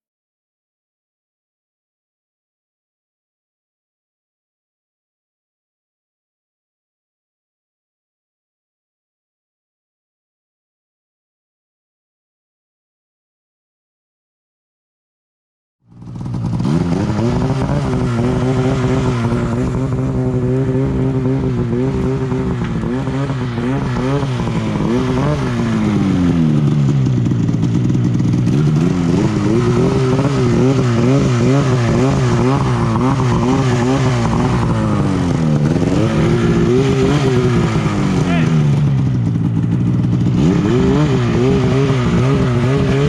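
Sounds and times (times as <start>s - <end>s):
snowmobile engine revving: 16.0s - 43.0s.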